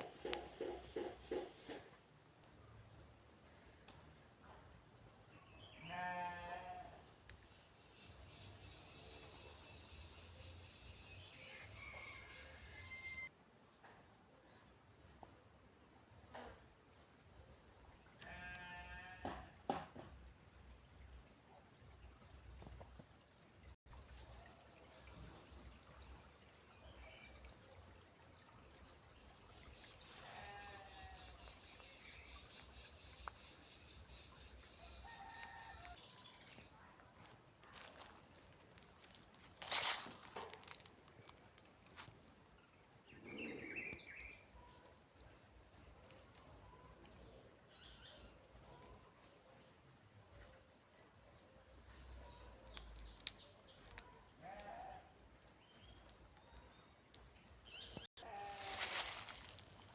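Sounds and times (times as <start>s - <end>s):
high insect trill: 58.2s - 59.9s.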